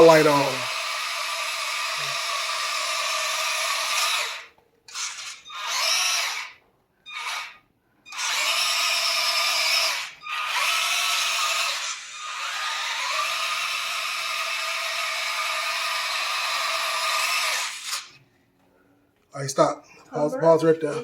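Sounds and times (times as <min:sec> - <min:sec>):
electric motor and gears whining: 0:00.0 - 0:18.2.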